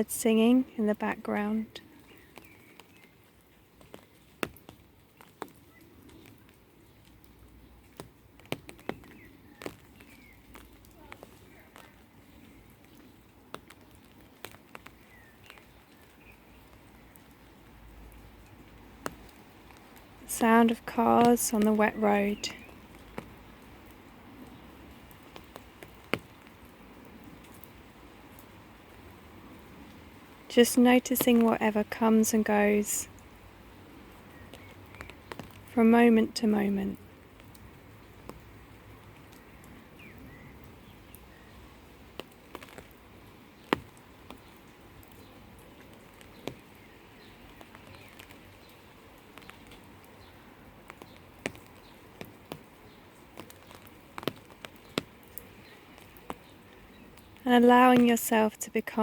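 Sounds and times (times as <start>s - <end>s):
faint birds chirping: 0.0s - 59.0s
faint steady rain hiss: 0.0s - 59.0s
raindrops landing: 0.0s - 59.0s.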